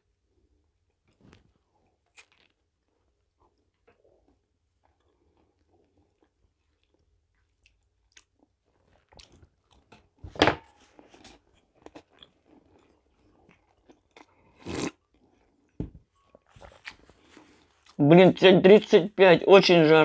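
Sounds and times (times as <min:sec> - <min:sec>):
person chewing a biscuit: 0:00.4 - 0:10.2, 0:10.8 - 0:18.0
slurping sip: 0:14.5 - 0:15.0.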